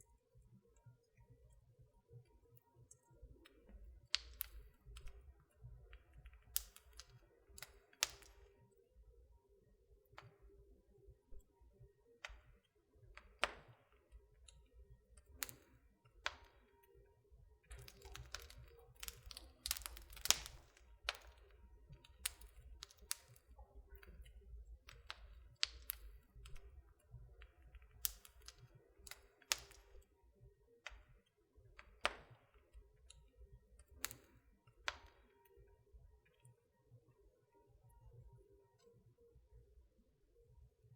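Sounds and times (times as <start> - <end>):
wood fire crackling: 3.2 - 8.8, 12.2 - 16.8, 17.6 - 30.1, 30.8 - 35.6.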